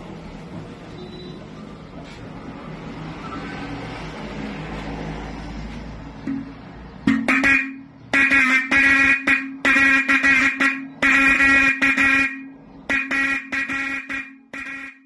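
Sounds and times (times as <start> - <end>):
car horn honking: 7.0 - 15.0.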